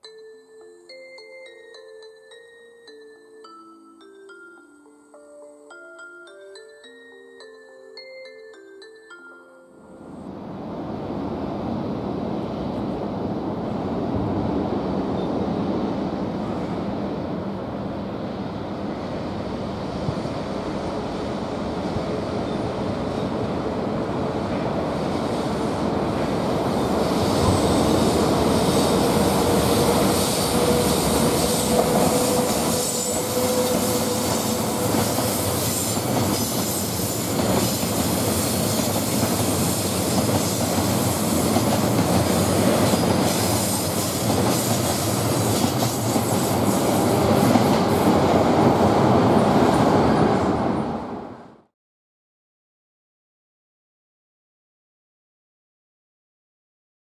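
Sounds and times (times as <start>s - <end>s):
freight train rolling past: 10.0s - 51.7s.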